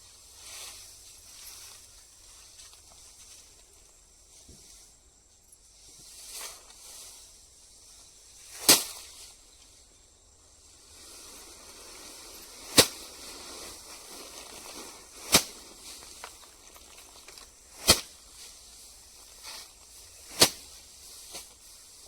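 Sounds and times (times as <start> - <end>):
faint outdoor background noise: 0.0 - 22.0
sharp cracks: 12.7 - 13.1, 15.2 - 18.2.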